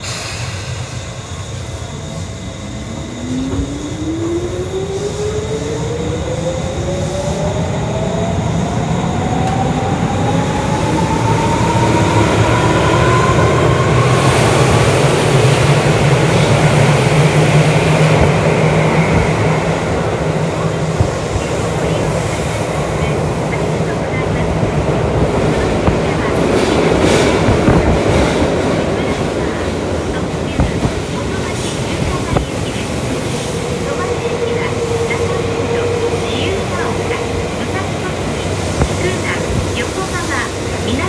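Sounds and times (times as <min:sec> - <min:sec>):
train motor whine rising: 0:00.0 - 0:22.9
wheels rumbling on rails: 0:01.7 - 0:41.0.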